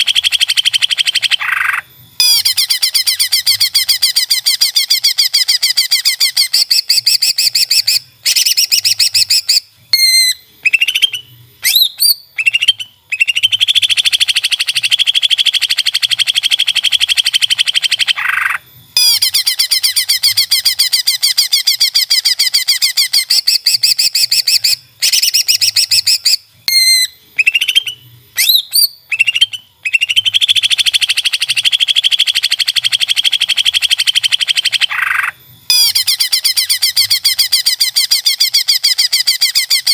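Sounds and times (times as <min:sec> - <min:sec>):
recorded birdsong trills and whistles: 0:00.0 - 0:39.9.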